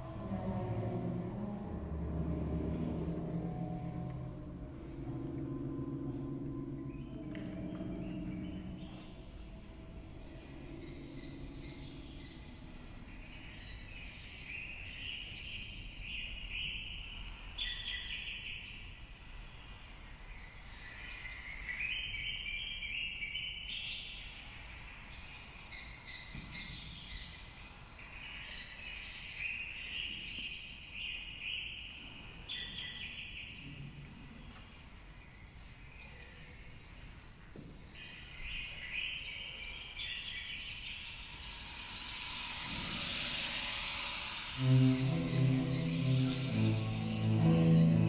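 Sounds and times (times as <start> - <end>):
low background hiss: 0.0 - 48.0
birds chirping: 2.6 - 17.0.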